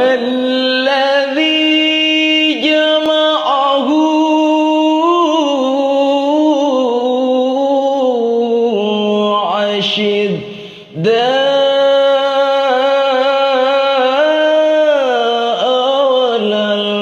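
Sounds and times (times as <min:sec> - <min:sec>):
person chanting recitation: 0:00.0 - 0:17.0.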